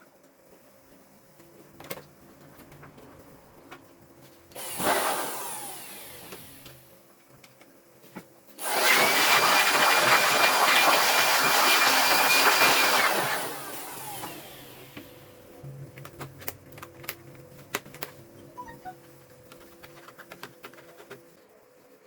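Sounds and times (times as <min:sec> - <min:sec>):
electric fan motor whining: 0:04.6 - 0:06.9, 0:08.6 - 0:19.6.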